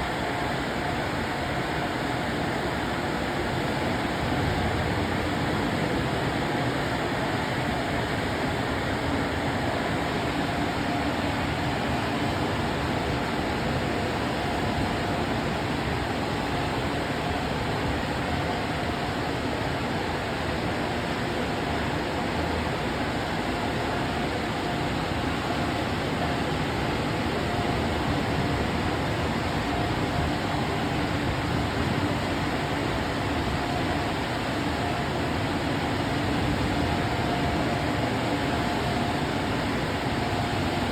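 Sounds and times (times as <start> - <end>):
dryer blowers rushing air: 21.8 - 40.9.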